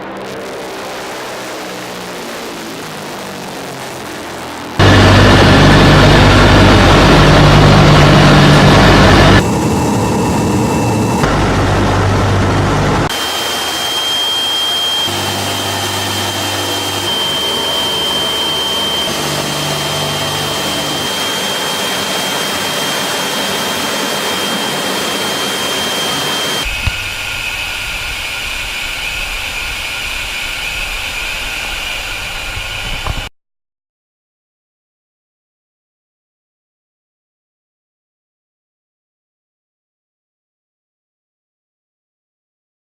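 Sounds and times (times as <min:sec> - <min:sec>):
deep rumble: 0:00.0 - 0:13.1, 0:14.8 - 0:33.3
high turbine whine: 0:00.0 - 0:33.3
turboprop engines running: 0:00.0 - 0:33.3.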